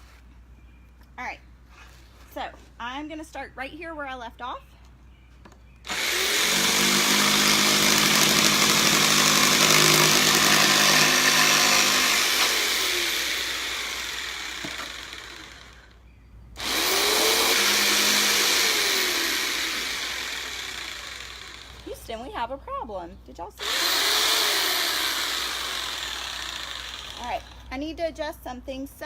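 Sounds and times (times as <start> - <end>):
electric jigsaw cutting wood: 5.9 - 16.0, 16.6 - 21.9, 23.6 - 27.6.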